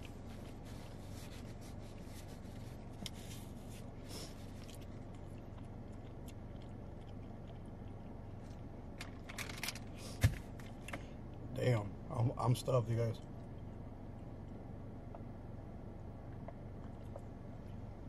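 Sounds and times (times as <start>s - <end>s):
wet chewing and mouth smacks: 0.0s - 9.3s, 13.2s - 15.4s, 16.2s - 17.9s
steady low hum: 0.0s - 18.0s.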